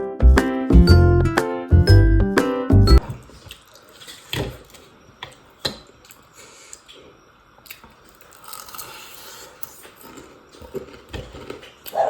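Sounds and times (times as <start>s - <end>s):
chewing: 3.0s - 12.0s.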